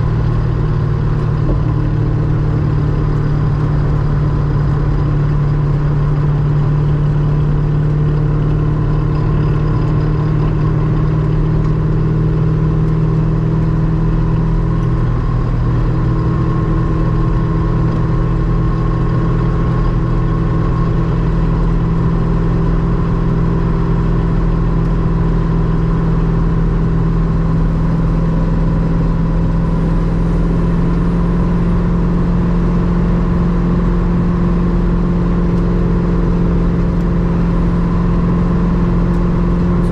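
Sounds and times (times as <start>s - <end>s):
car engine cruising drone: 0.0s - 39.9s.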